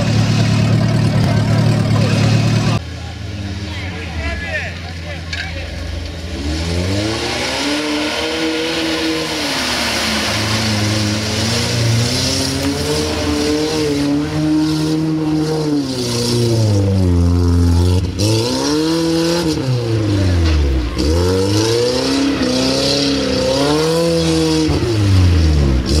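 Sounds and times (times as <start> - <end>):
car engine revving hard: 6.3 - 26.0
water and mud splashing: 6.5 - 15.4.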